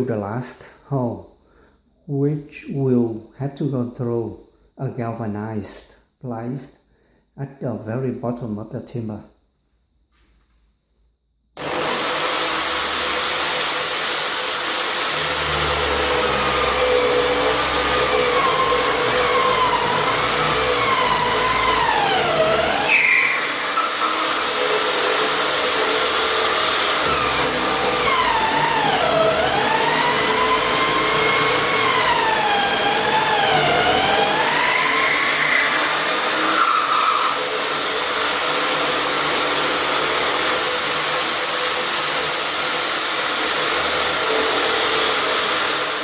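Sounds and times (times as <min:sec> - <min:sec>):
drill bit squeal: 0:11.6 - 0:41.4
electric drill boring: 0:11.6 - 0:46.0.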